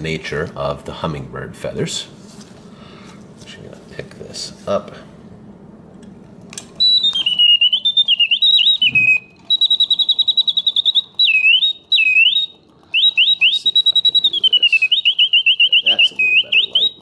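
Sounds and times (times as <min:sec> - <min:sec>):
mechanical bird whistling: 0:06.8 - 0:17.0.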